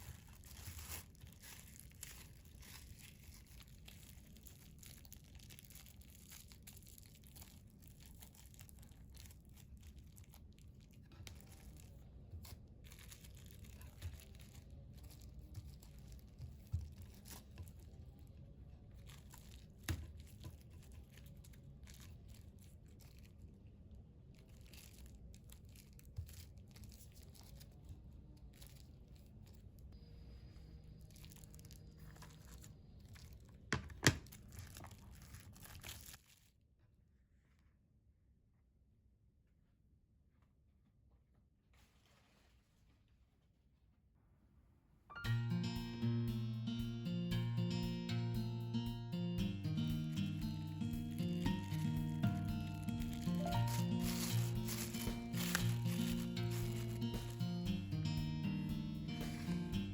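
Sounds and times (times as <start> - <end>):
plastic bag crinkling: 0.0 - 23.6, 24.3 - 29.9, 31.0 - 36.5, 50.0 - 59.9.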